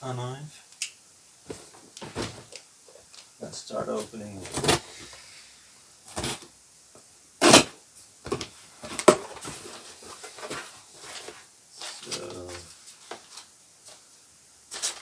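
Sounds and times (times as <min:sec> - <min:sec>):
cardboard rustling: 0:04.0 - 0:05.0
knife cutting packing tape: 0:07.4 - 0:07.7.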